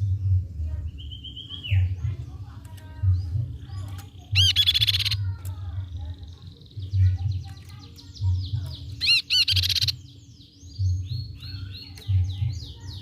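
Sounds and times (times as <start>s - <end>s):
low pulsing rumble: 0.0s - 4.5s
bird singing high notes: 4.3s - 5.2s, 8.9s - 10.1s.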